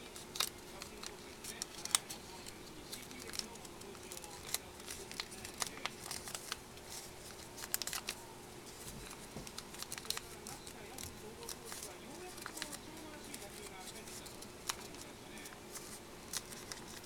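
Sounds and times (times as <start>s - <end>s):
faint steady hum: 0.0s - 17.0s
paper rustling and creasing: 0.0s - 17.0s.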